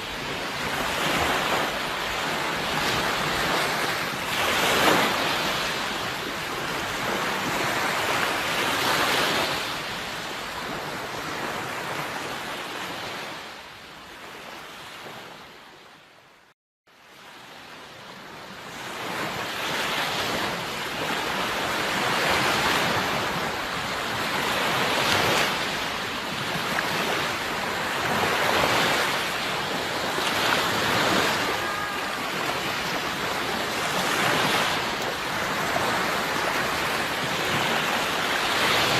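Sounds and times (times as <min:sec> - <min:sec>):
sea waves washing onto shore: 0:00.0 - 0:13.6, 0:18.2 - 0:38.9.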